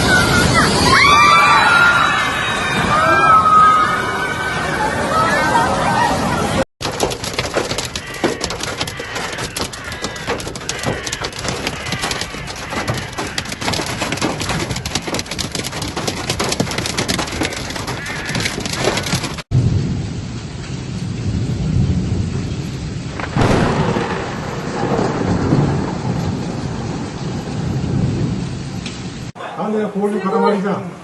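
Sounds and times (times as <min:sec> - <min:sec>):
rumbling downpour: 0:00.0 - 0:30.0
hailstones pelting hard surfaces: 0:06.8 - 0:19.5, 0:23.2 - 0:28.2.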